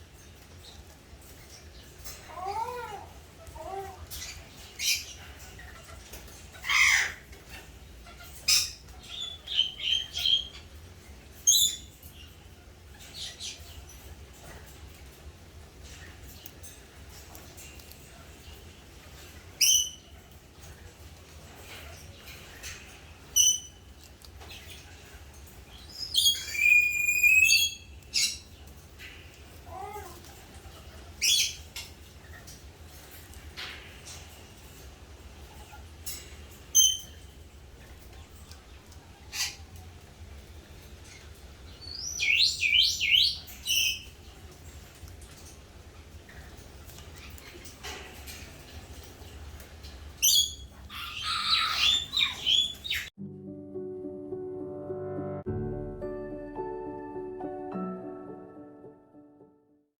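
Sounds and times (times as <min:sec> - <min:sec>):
parrot squawking: 0:02.3 - 0:10.5, 0:26.0 - 0:28.4, 0:50.2 - 0:53.1.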